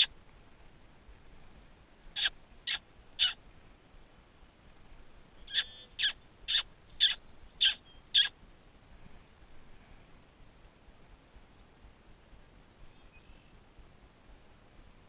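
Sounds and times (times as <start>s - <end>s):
bird giving harsh calls: 2.2s - 3.4s, 5.4s - 8.3s.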